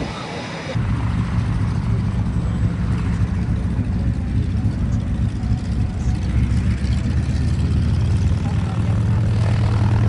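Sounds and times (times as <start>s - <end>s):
aircraft engine droning: 8.6s - 10.0s.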